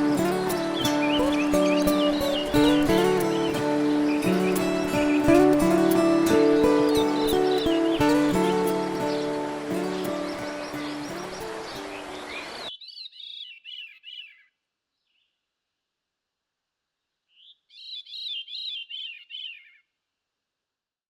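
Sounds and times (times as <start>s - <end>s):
background music: 0.0s - 12.5s
songbird chirping: 0.0s - 15.4s, 17.2s - 19.9s.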